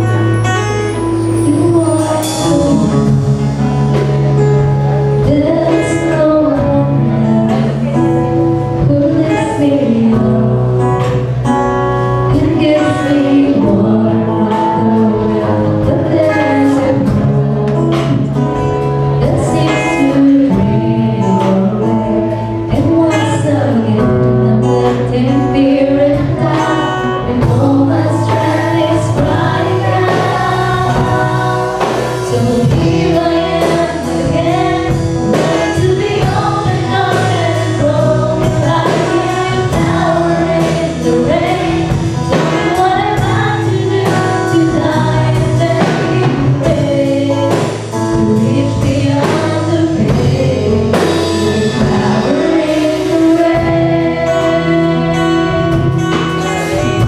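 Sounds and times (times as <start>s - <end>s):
song with singing voices: 0.0s - 57.0s.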